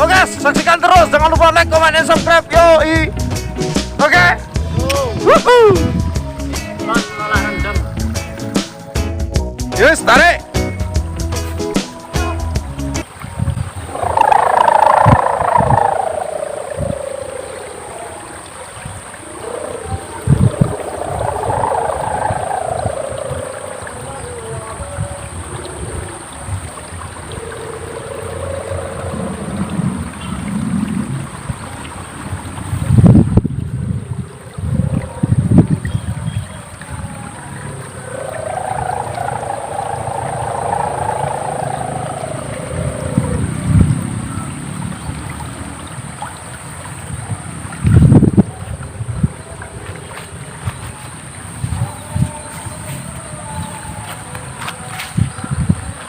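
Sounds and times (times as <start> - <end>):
kite hummer wailing: 4.6 - 6.1, 13.7 - 31.3, 33.6 - 45.6, 47.1 - 56.0
wind buffeting microphone: 13.0 - 56.0.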